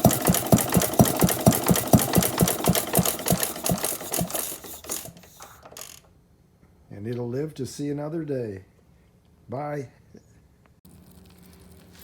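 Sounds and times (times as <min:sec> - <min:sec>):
engine running: 0:00.0 - 0:05.9.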